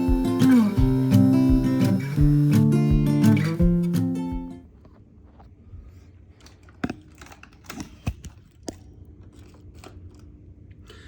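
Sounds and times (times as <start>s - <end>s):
acoustic guitar: 0.0s - 4.7s.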